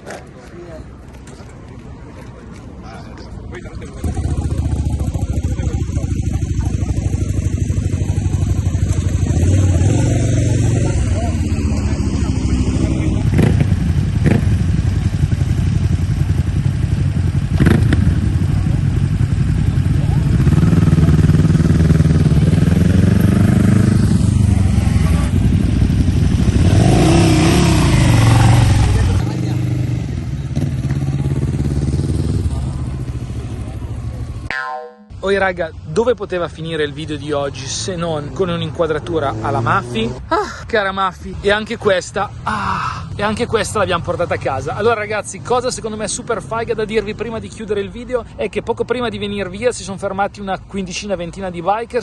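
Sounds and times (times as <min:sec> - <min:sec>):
motorcycle engine running: 0:03.9 - 0:34.5.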